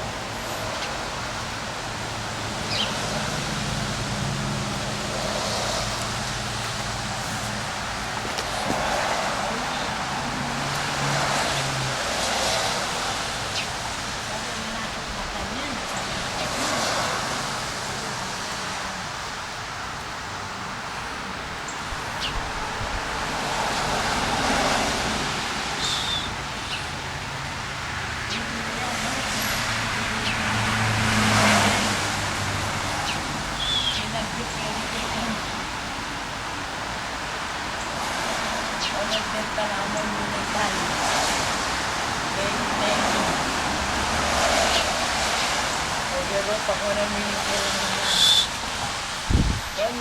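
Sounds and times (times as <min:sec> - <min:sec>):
strong wind blowing: 0:00.0 - 0:50.0.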